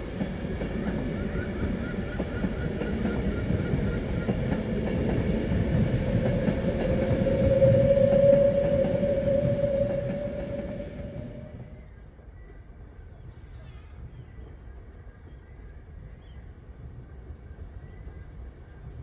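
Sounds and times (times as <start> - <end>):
train running on rails: 0.0 - 19.0
steady high tone: 6.6 - 11.8.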